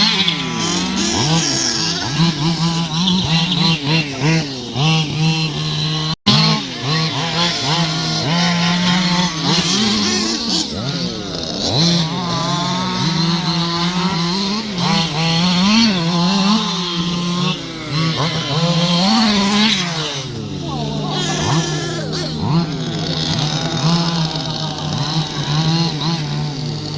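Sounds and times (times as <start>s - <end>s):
model car motors whining: 0.0s - 26.9s.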